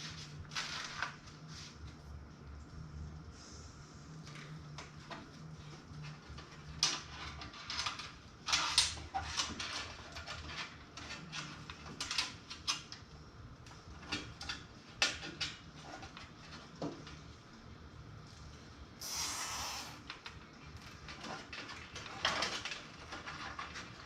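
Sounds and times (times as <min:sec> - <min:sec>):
cables and plastic parts handled: 0:04.2 - 0:13.0, 0:20.1 - 0:24.0.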